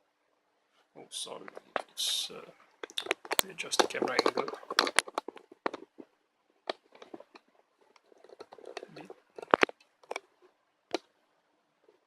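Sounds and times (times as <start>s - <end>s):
objects clicking and knocking: 1.5s - 11.1s.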